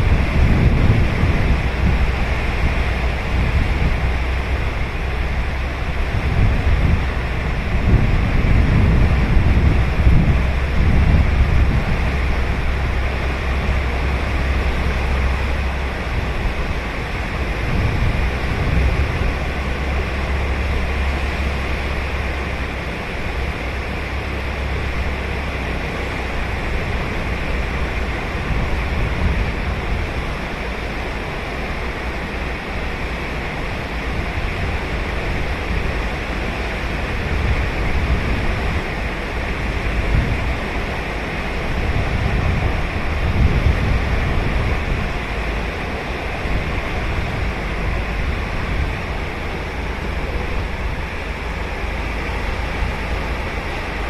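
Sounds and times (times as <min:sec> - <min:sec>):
ocean waves breaking on beach: 0:00.0 - 0:54.0
wind rumble on microphone: 0:00.0 - 0:54.0.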